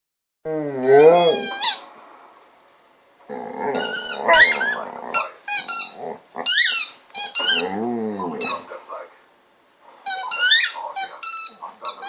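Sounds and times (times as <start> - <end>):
dog groaning and whining: 0.5 - 1.8, 3.3 - 8.7
dog squeaky whines and grumbles: 0.5 - 1.9, 3.3 - 8.7, 10.0 - 12.0.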